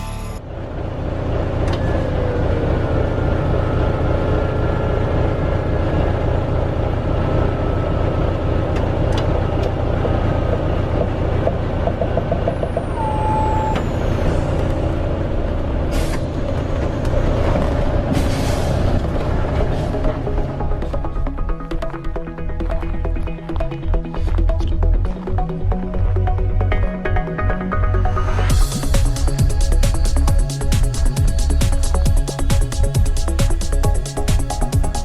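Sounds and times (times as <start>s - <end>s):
diesel truck engine rumbling: 0.0s - 35.0s
whistle-like tone: 12.5s - 15.0s.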